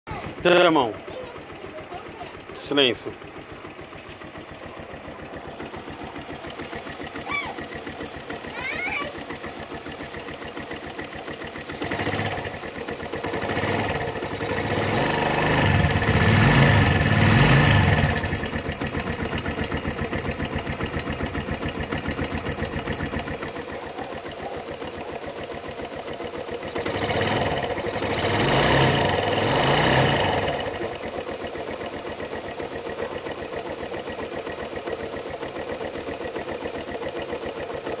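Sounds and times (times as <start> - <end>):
motorcycle engine idling and revving: 0.0 - 38.0.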